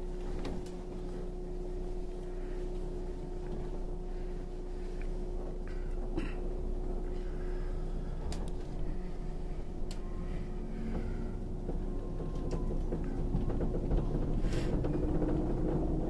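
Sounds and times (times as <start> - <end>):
train interior hum: 0.0 - 16.0
train running noise: 7.7 - 16.0
sharp clicks and knocks: 10.9 - 16.0.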